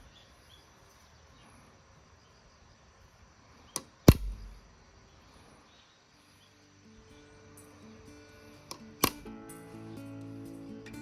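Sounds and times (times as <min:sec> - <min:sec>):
sharp hit with low thud: 0:04.1 - 0:04.7.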